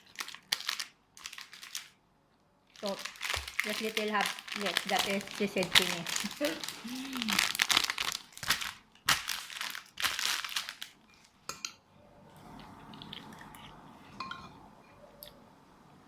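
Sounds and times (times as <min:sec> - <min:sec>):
packaging crinkling: 0:00.0 - 0:02.0, 0:02.7 - 0:11.0.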